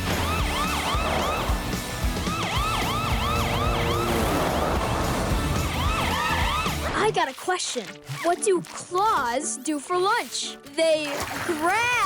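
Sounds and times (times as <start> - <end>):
cartoon police siren yelping: 0.0 - 6.8
background music: 0.0 - 12.0.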